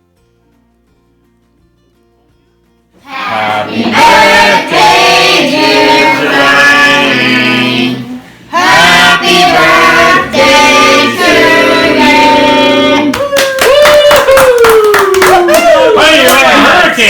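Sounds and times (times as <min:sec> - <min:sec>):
voices singing a melody: 0:03.0 - 0:13.1
crowd cheering: 0:13.0 - 0:17.0
people clapping: 0:13.0 - 0:17.0.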